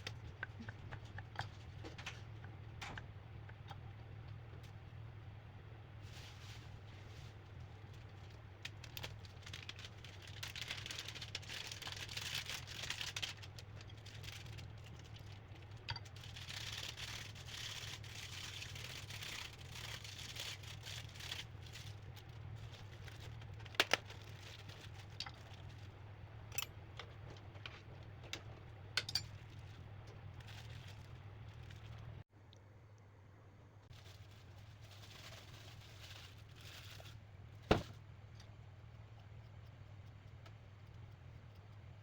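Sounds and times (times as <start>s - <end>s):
steady low hum: 0.0s - 42.0s
rustling and scraping: 6.0s - 32.2s, 33.9s - 38.0s.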